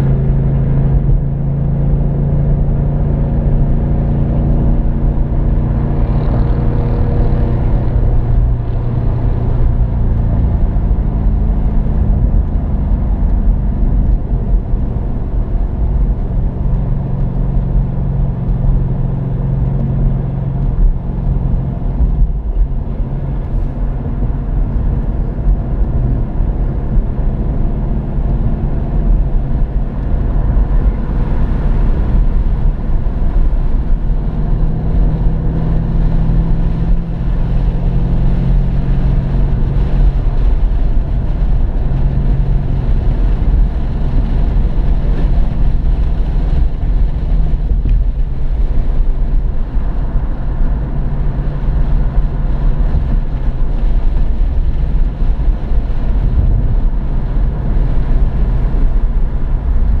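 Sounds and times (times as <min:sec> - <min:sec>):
car engine running hard: 0:00.0 - 1:00.0
road noise: 0:00.0 - 1:00.0
wind noise: 0:00.0 - 1:00.0.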